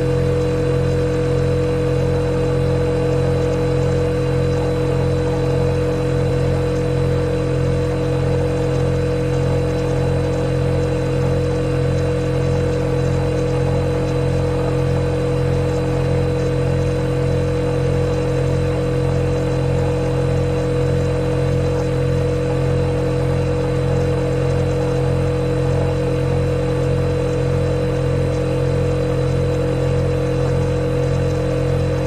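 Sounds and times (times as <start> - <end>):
refrigerator humming: 0.0 - 32.0.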